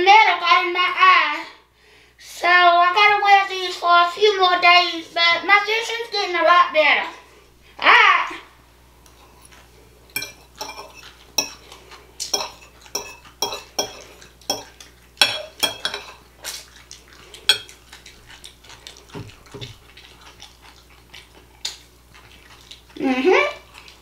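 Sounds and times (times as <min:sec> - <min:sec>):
cutlery clinking on a plate: 0:10.2 - 0:11.6, 0:12.2 - 0:16.2, 0:17.5 - 0:17.8.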